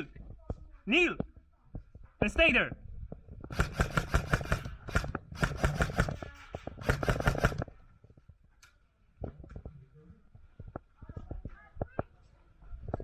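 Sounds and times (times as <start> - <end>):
airsoft gun firing bursts: 3.5 - 7.8.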